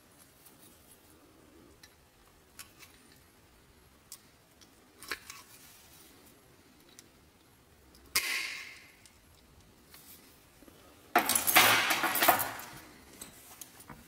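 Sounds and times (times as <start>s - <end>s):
sheet metal clinking and rattling: 11.2s - 13.4s.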